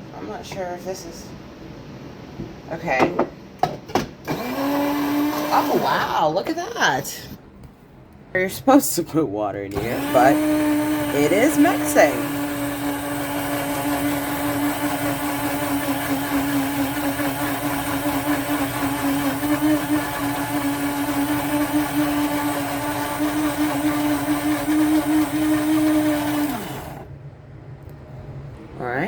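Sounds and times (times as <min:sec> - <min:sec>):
electric grinder motor running: 0:09.7 - 0:27.0.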